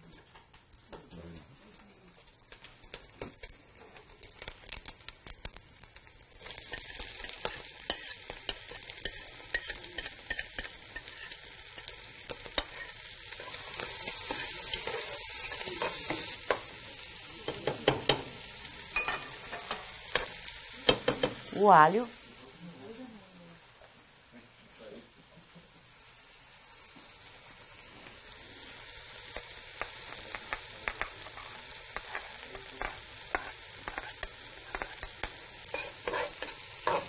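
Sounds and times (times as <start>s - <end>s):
bacon sizzling in a pot: 0.0s - 37.0s
spoon scraping a pot: 6.7s - 11.4s, 12.5s - 16.6s, 29.9s - 37.0s.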